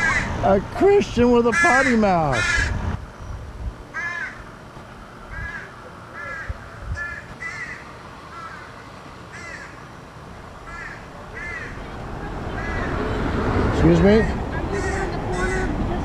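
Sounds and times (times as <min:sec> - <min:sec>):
crows cawing: 0:00.0 - 0:00.4, 0:01.5 - 0:02.8, 0:03.9 - 0:16.0.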